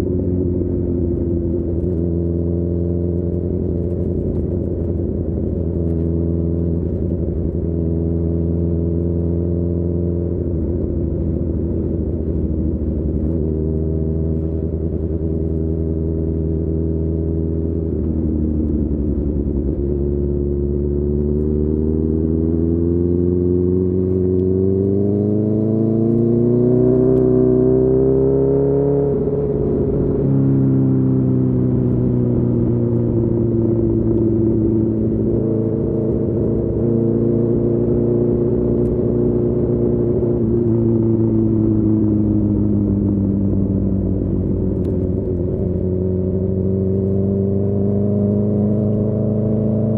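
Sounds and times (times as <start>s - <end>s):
motorcycle engine revving: 12.5s - 49.9s.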